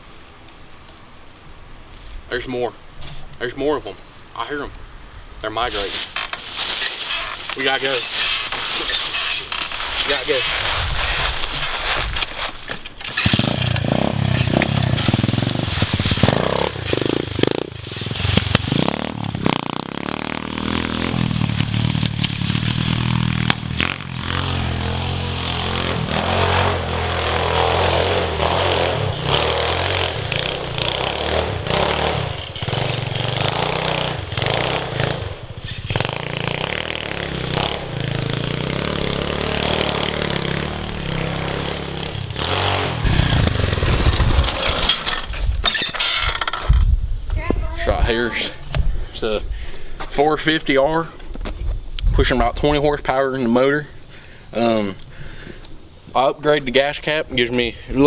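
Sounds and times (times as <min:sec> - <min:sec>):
dirt bike engine running: 0:05.7 - 0:45.6.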